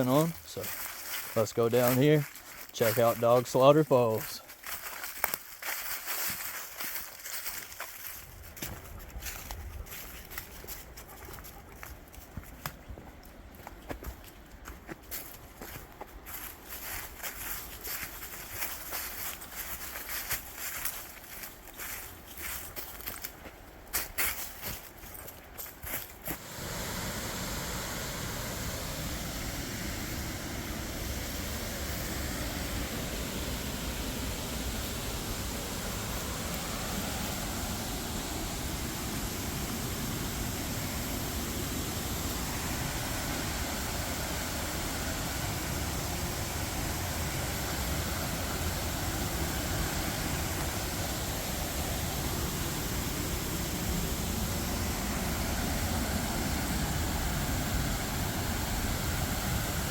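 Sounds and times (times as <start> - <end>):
waterfall roaring: 26.3 - 59.9.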